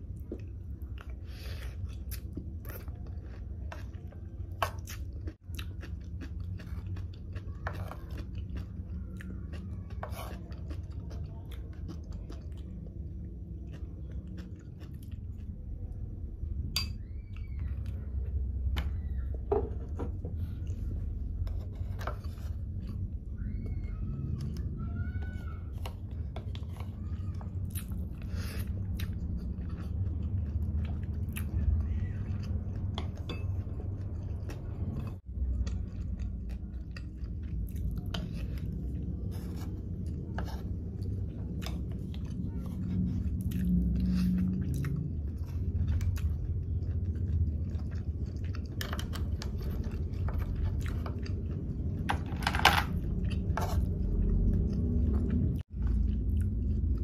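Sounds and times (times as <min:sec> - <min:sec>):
wet chewing: 0:00.0 - 0:52.1, 0:52.9 - 0:57.0.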